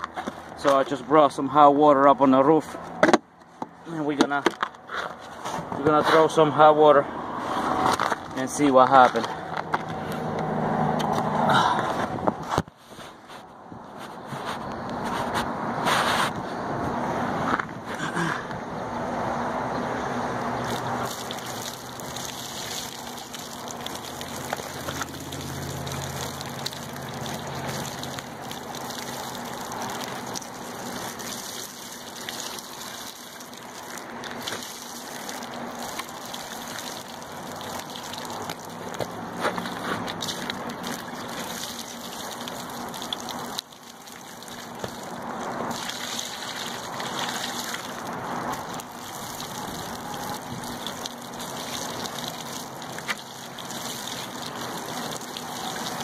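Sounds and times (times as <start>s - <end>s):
hot water pouring and splashing: 20.6s - 56.0s.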